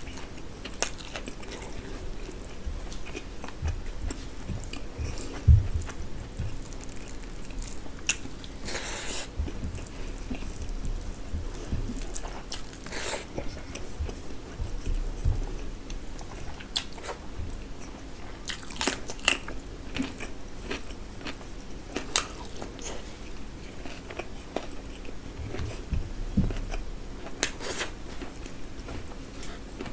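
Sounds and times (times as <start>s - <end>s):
person chewing: 0.0s - 29.9s.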